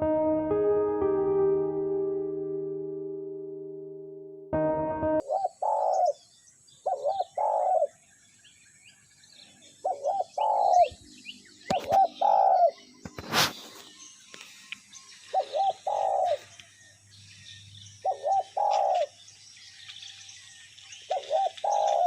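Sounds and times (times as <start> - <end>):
doves cooing: 5.2 - 6.2, 6.8 - 8.0, 9.8 - 11.0, 11.7 - 12.8, 15.3 - 16.5, 18.0 - 19.2, 21.1 - 22.0
faint small-bird chirps: 5.2 - 22.0.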